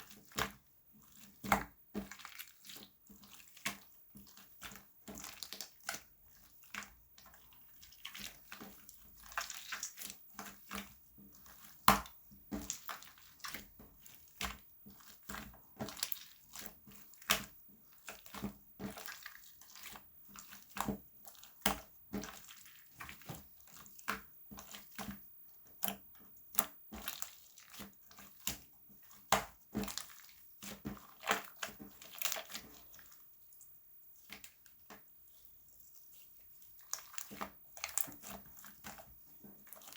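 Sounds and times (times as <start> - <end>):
slime squelching and popping: 6.6 - 25.1.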